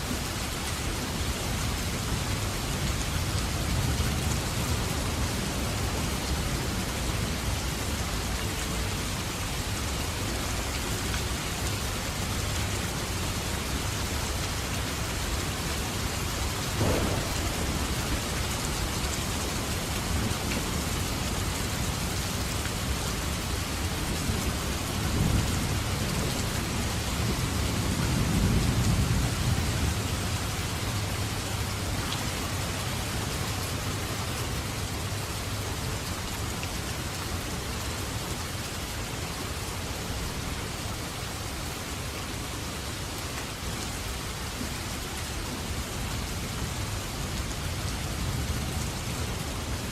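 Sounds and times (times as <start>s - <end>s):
heavy rain falling: 0.0s - 49.9s
thunder crack and rumble: 16.6s - 21.5s.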